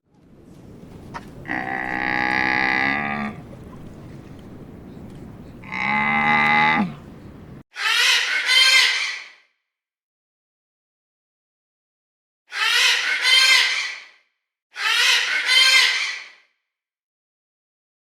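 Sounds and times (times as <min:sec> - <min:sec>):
long drawn-out animal call: 0:01.4 - 0:03.8, 0:05.6 - 0:07.1
higher wavering animal call: 0:05.6 - 0:07.1.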